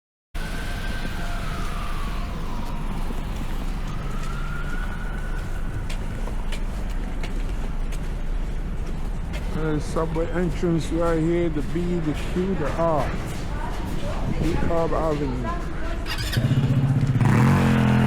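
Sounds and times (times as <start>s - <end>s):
emergency siren wailing: 0.4s - 7.2s
city traffic rumble: 0.4s - 18.0s.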